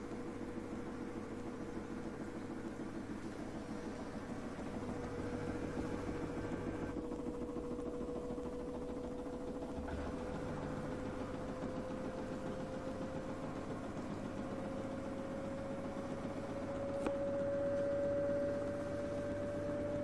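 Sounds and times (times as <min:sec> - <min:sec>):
washing machine spinning: 0:00.0 - 0:20.0
motor whine rising in pitch: 0:09.5 - 0:20.0.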